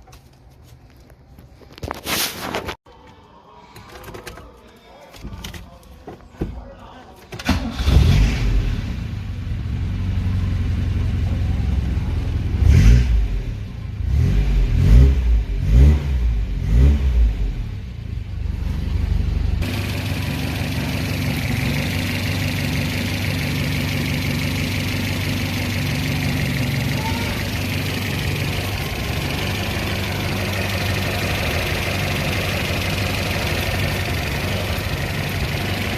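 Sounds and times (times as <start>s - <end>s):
car engine revving and idling: 7.7s - 35.9s.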